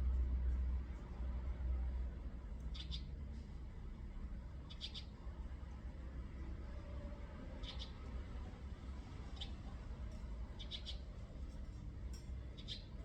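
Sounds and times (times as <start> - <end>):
small bird chirping: 2.7 - 3.1, 4.6 - 5.2, 7.6 - 8.1, 9.3 - 9.7, 10.5 - 11.2, 12.4 - 13.0.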